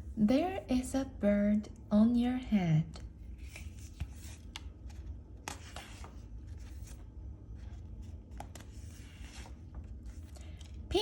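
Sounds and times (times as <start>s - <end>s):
steady low hum: 0.0s - 11.0s
book pages turning: 2.9s - 10.9s.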